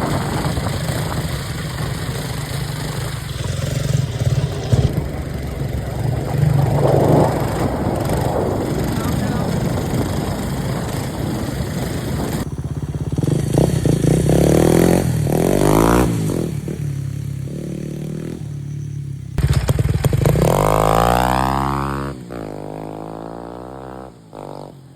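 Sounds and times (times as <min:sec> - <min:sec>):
rushing noise: 0:00.0 - 0:16.5
motorcycle engine revving: 0:00.0 - 0:24.9.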